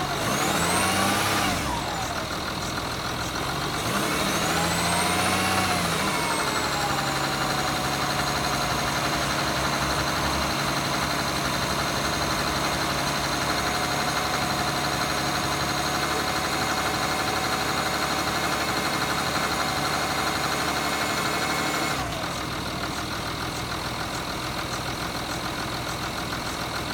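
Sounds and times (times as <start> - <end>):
high whine winding down: 0.0 - 14.1
diesel car engine idling: 0.0 - 26.9.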